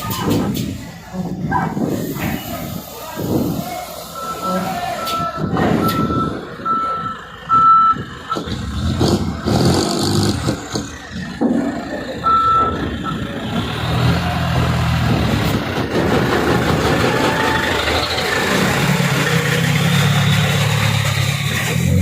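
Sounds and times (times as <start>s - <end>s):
diesel truck engine running: 0.0s - 22.0s
truck reverse warning beeps: 2.2s - 8.9s, 12.1s - 13.6s.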